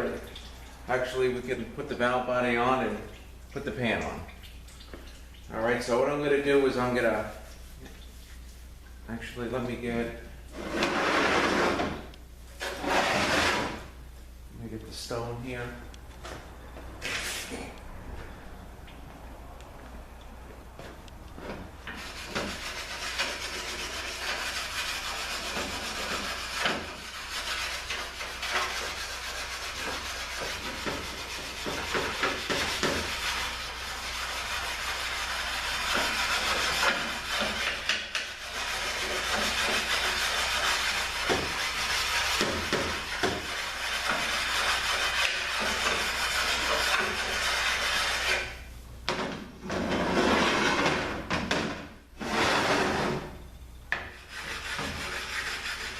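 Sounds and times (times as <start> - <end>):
metal scraping on sanding stone: 10.6 - 11.9, 12.6 - 13.8, 21.9 - 48.6, 52.2 - 53.2, 54.1 - 55.9.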